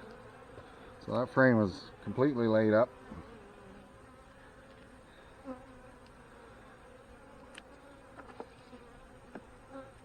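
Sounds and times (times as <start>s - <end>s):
bees buzzing: 0.0s - 10.0s.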